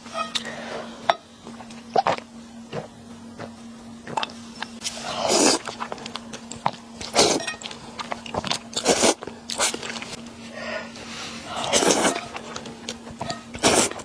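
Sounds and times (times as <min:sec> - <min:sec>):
wet chewing clicks: 0:01.5 - 0:10.2
person slurping noodles: 0:04.9 - 0:05.8, 0:07.0 - 0:07.4, 0:08.4 - 0:10.0, 0:11.4 - 0:12.6, 0:13.6 - 0:14.0.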